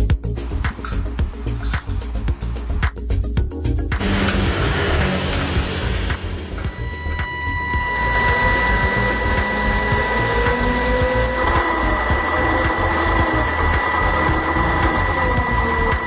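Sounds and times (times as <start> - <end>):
small electric motor whirring: 4.0 - 16.0.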